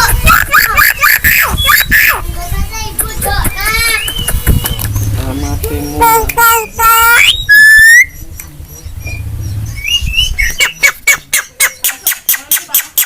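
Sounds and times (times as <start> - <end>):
myna squawking: 0.0 - 2.2
rising whistle: 7.2 - 8.2.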